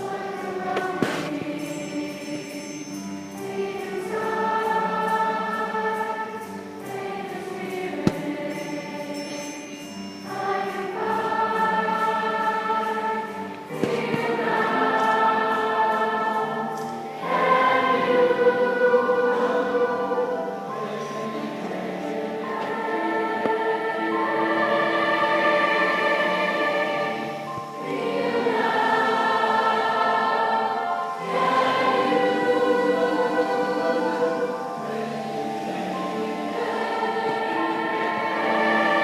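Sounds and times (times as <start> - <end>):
young choir singing: 0.0 - 39.0.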